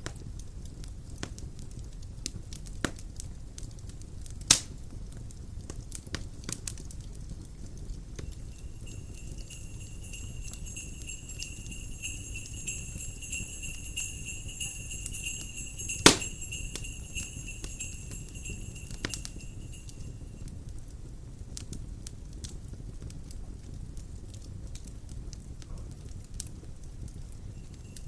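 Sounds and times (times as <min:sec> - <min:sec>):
fire crackling: 0:00.0 - 0:28.0
fire rumbling: 0:00.1 - 0:28.0
sleigh bells jingling: 0:08.2 - 0:20.5, 0:27.4 - 0:28.0.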